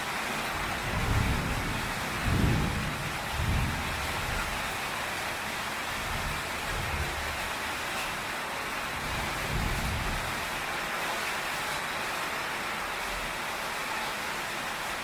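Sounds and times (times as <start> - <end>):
heavy rain on a tin roof: 0.0 - 15.0
thunder rumble: 0.8 - 5.0, 9.0 - 10.4.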